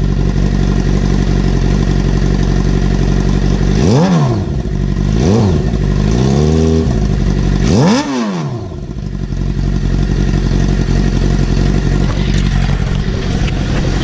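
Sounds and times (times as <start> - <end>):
motorcycle engine revving and idling: 0.0 - 14.0.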